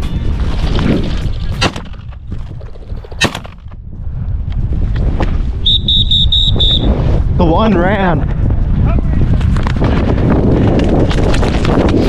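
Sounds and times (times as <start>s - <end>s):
shotgun shots: 3.2s - 3.6s.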